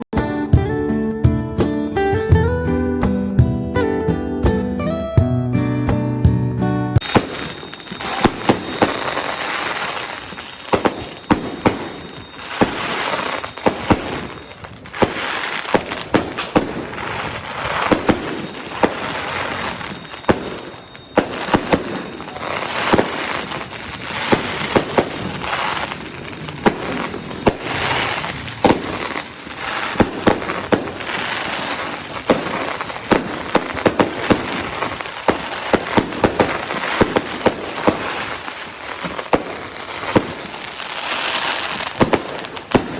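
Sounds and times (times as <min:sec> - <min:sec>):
fireworks bangs: 0:07.0 - 0:42.9
fireworks crackling hiss: 0:07.0 - 0:42.9.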